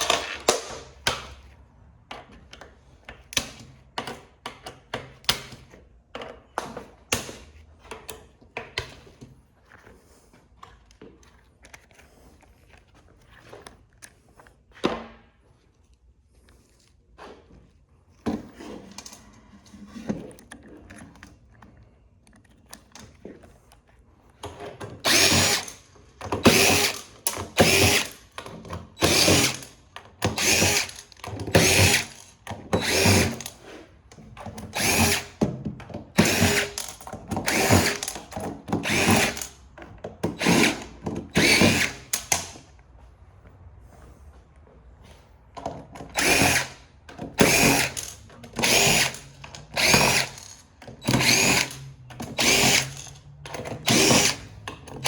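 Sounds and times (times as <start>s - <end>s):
power drill bursts: 25.0s - 25.8s, 26.4s - 28.3s, 29.0s - 33.6s, 34.7s - 35.4s, 36.2s - 39.6s, 40.3s - 42.6s, 46.1s - 54.6s.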